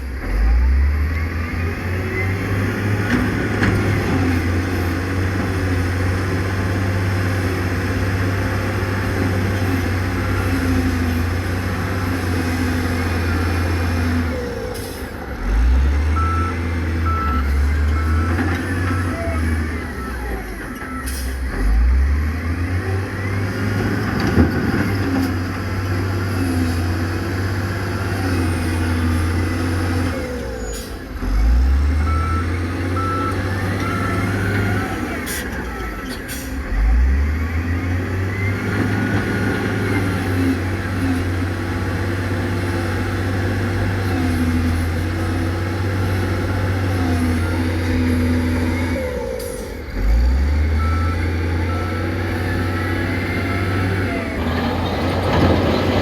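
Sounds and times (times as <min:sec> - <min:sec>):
heavy diesel machinery running: 0:00.0 - 0:56.0
reversing alarm beeping: 0:16.1 - 0:23.6, 0:31.9 - 0:38.7, 0:47.1 - 0:54.7.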